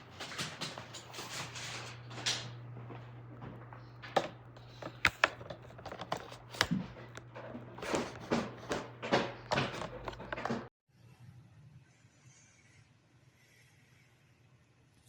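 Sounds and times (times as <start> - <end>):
vacuum cleaner handling clicks: 4.1 - 10.6.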